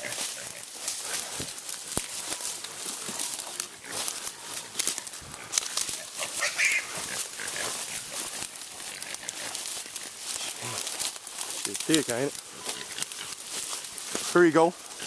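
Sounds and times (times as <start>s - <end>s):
branches crackling and snapping: 0.0s - 15.0s
short animal cry: 6.4s - 6.9s.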